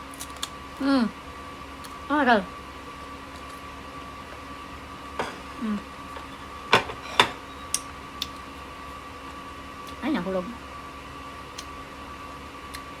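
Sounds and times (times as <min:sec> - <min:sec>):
steady background hum: 0:00.0 - 0:13.0
crunchy fruit being chewed: 0:03.2 - 0:04.5.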